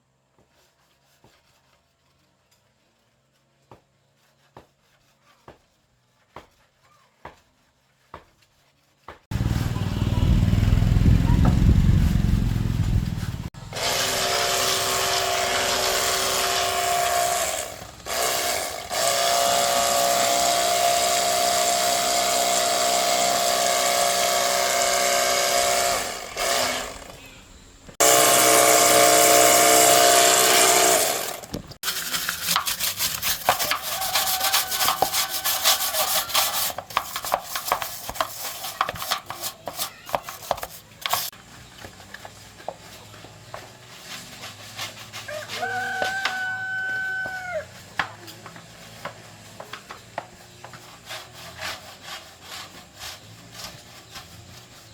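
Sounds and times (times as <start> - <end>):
rapid irregular scraping: 28.0 - 41.4.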